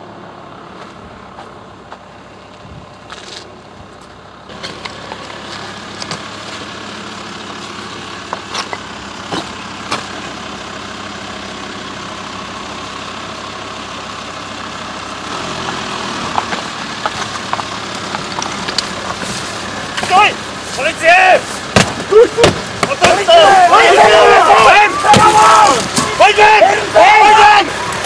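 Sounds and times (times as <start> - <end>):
vehicle engine running: 0.0 - 28.0
sharp clicks and knocks: 15.6 - 19.3.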